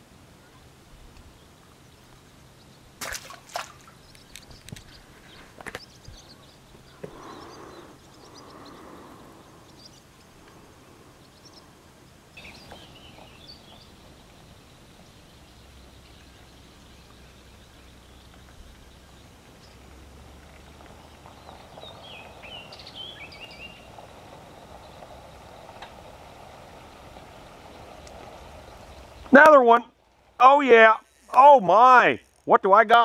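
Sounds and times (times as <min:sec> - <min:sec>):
bird chirps: 0:03.7 - 0:19.9, 0:21.0 - 0:24.0.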